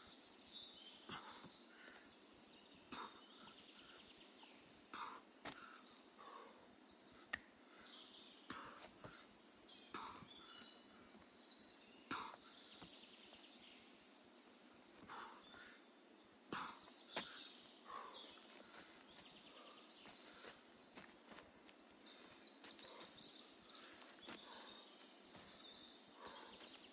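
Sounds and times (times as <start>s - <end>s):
birds chirping and trilling: 0.0s - 26.9s
footsteps rustling on forest floor: 16.8s - 26.9s.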